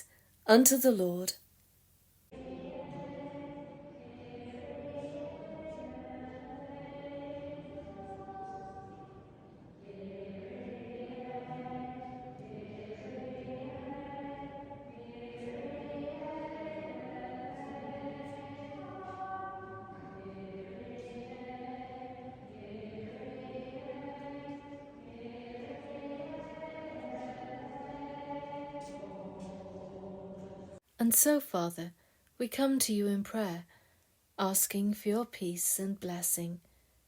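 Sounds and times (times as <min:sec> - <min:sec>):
choir singing sustained chords: 0:02.3 - 0:30.8.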